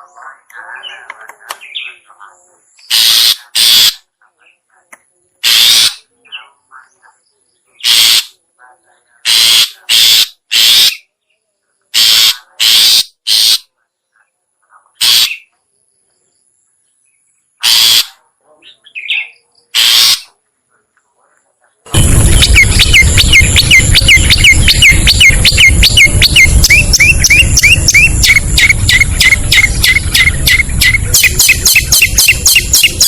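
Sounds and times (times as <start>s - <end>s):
short harsh bird calls: 2.8s - 4.1s, 5.4s - 6.2s, 6.9s - 8.4s, 9.2s - 11.2s, 11.9s - 13.8s, 14.9s - 15.6s, 17.6s - 20.4s, 21.9s - 33.0s.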